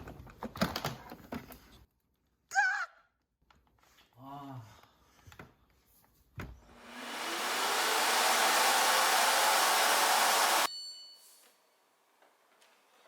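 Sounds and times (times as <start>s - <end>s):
vacuum motor whining: 6.6s - 10.7s.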